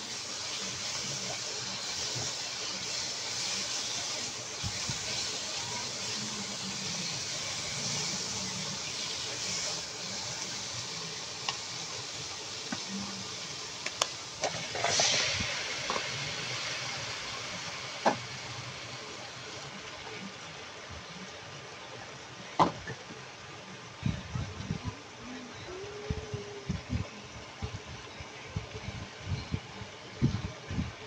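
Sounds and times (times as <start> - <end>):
food sizzling in a frying pan: 0.0 - 20.8.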